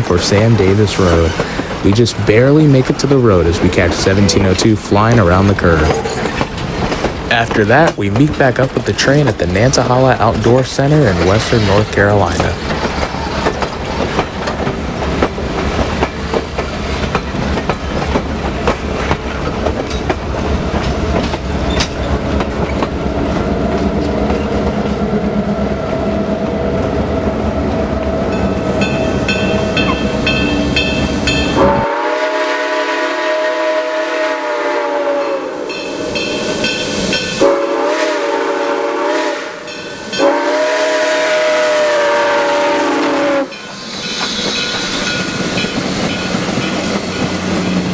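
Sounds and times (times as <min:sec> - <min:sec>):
train clattering along rails: 0:00.0 - 0:47.9
steam locomotive whistle: 0:31.6 - 0:36.3, 0:37.4 - 0:45.2.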